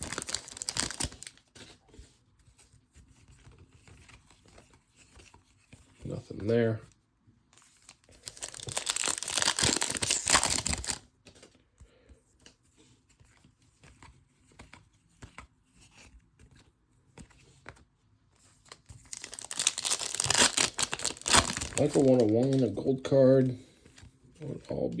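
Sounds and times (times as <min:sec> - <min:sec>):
card pack wrapper tearing and crinkling: 0:00.0 - 0:01.6, 0:07.6 - 0:11.1, 0:18.7 - 0:22.9
cards ticking as handled: 0:00.0 - 0:01.7, 0:18.7 - 0:22.9.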